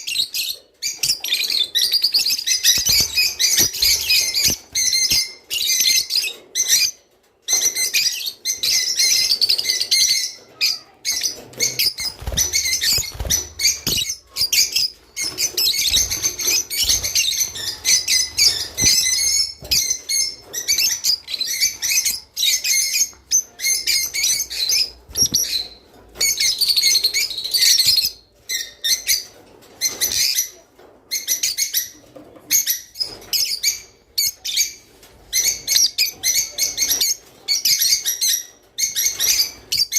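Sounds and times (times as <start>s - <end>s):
lovebirds chirping: 0.0s - 29.3s.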